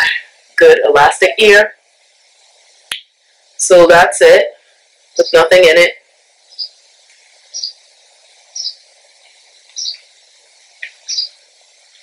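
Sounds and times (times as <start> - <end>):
faint steady hiss: 0.0 - 12.0
bird chirping: 5.1 - 12.0.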